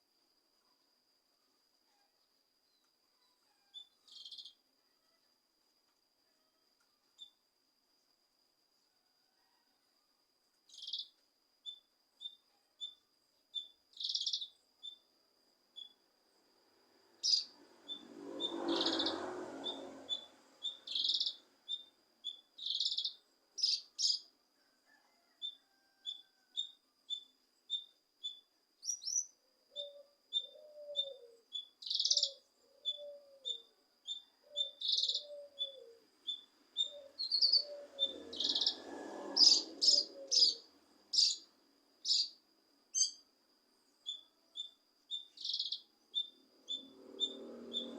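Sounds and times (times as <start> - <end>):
bird high chirps: 10.7 - 13.0, 13.6 - 15.0, 17.2 - 24.3, 25.4 - 43.2, 44.0 - 47.9
bird song bursts: 13.6 - 15.0, 17.2 - 24.3, 26.6 - 41.4, 42.0 - 43.2, 44.0 - 47.9
lower arched bird call: 17.2 - 24.3, 25.1 - 41.4, 42.0 - 42.4, 44.1 - 47.9.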